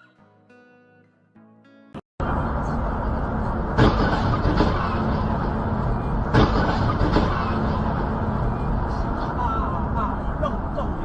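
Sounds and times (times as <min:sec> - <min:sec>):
car driving on road: 0:02.2 - 0:11.0.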